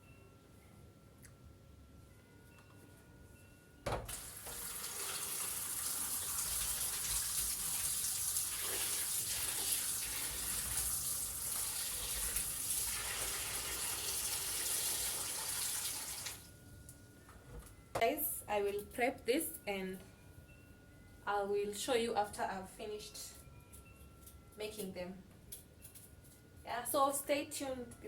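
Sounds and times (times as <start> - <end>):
water running from kitchen tap: 4.1 - 16.5.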